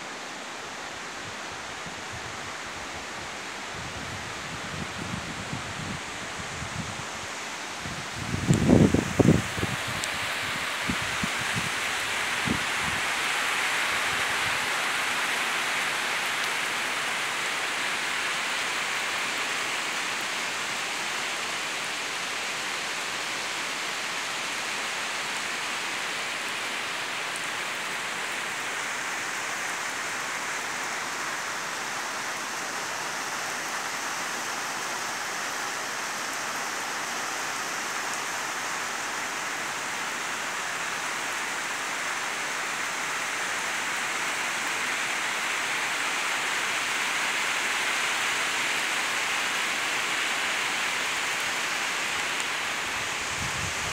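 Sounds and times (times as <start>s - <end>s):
heavy rain on concrete: 0.0s - 53.9s.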